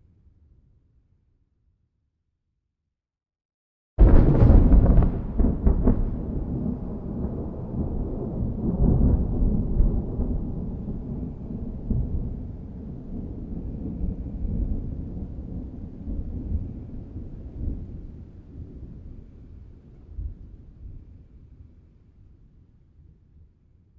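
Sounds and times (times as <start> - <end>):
rolling thunder: 4.0 - 19.3.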